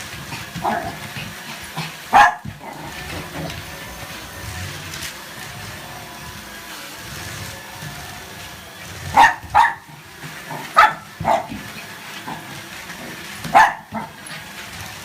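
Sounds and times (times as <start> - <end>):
vacuum cleaner hum: 0.0 - 15.0
dog barking: 2.1 - 2.5, 9.2 - 9.9, 10.8 - 11.5, 13.5 - 14.1.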